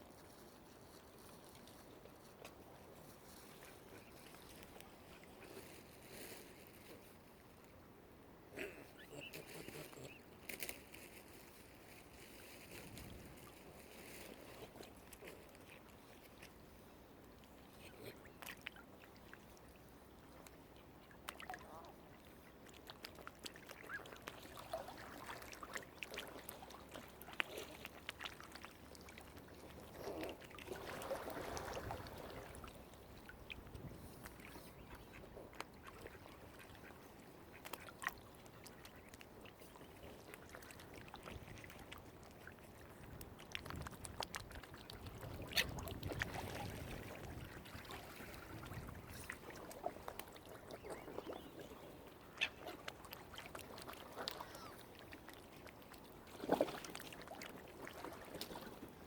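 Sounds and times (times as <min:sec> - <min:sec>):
waterfowl calling: 0:08.9 - 0:10.3
light splashes: 0:17.2 - 0:59.0.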